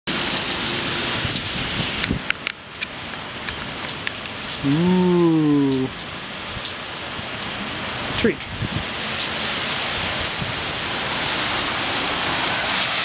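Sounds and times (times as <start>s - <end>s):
rain patter: 0.1s - 13.0s
water dripping onto surfaces: 0.1s - 13.0s
person making drawn-out vocal sound: 4.6s - 6.0s.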